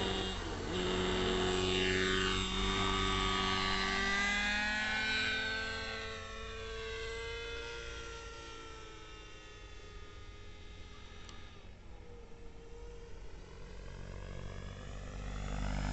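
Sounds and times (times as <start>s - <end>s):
model helicopter engine and rotors: 0.0s - 15.9s.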